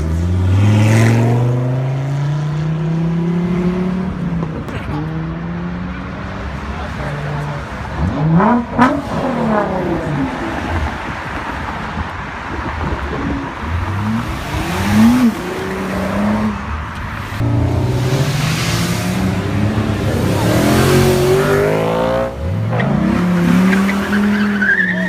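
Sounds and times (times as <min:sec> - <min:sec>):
car engine revving: 0:13.1 - 0:25.0.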